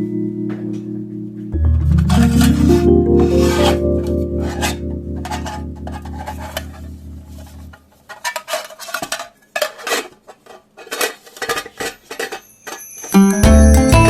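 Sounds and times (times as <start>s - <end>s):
metal cookware clinking: 4.4s - 10.2s, 10.8s - 13.4s.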